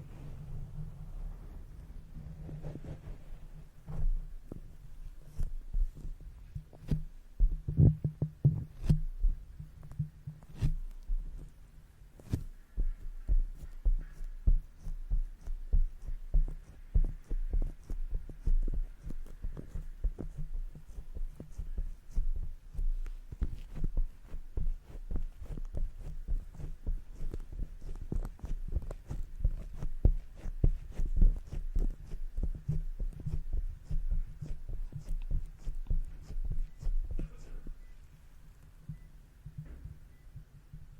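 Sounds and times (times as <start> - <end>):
brush tapping on microphone: 3.9 - 11.6, 12.2 - 37.9.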